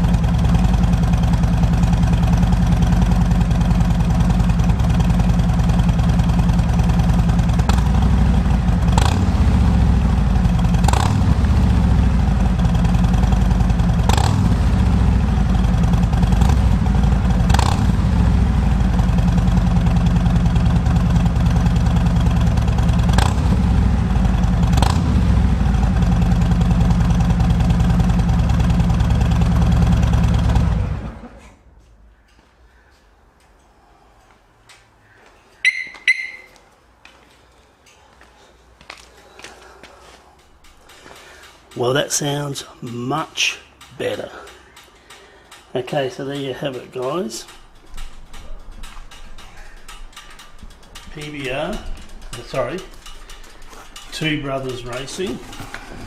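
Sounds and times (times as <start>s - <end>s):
motorcycle engine idling and revving: 0.0s - 32.4s, 43.4s - 56.0s.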